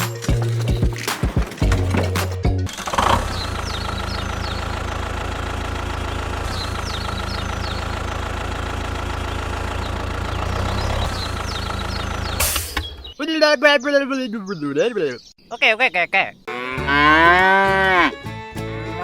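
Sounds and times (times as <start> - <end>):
engine idling: 0.3 - 12.6.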